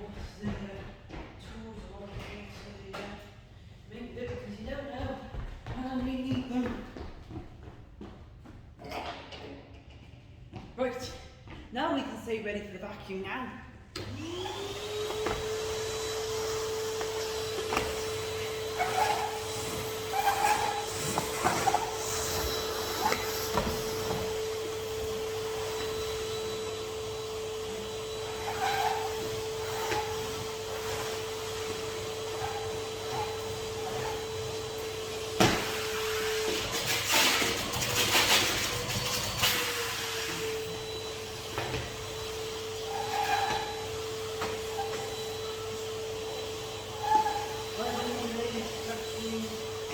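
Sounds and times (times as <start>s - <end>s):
vacuum cleaner humming: 14.0s - 49.9s.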